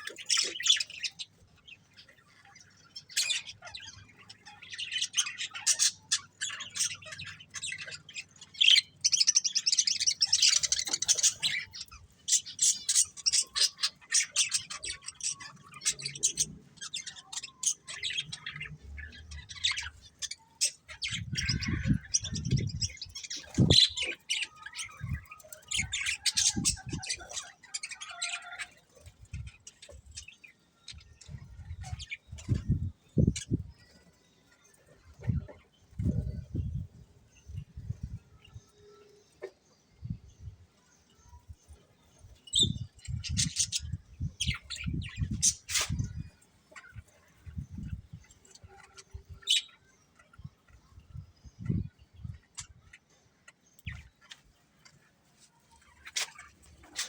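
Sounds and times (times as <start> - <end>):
budgerigars chirping: 0.0 - 34.0, 42.2 - 50.8.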